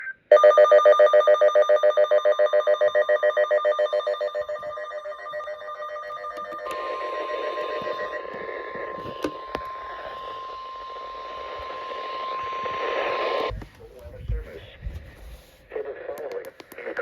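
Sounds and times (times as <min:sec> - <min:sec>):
pulsing ringing electronic tone: 0:00.3 - 0:13.5
steady warning alarm tone: 0:00.3 - 0:13.5
crackly radio static: 0:04.5 - 0:17.0.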